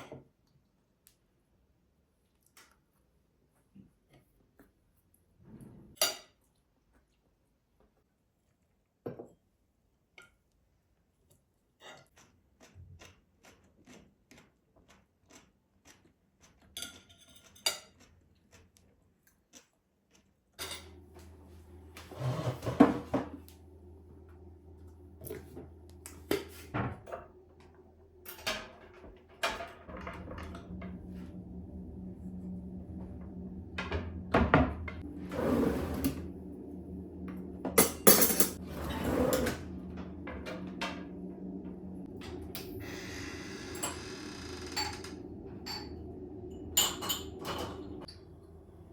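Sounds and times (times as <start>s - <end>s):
appliance humming: 20.6s - 48.9s
drawer opening or closing: 22.0s - 23.5s, 33.9s - 36.4s, 37.8s - 45.4s
dishes and cutlery clinking: 46.7s - 48.2s.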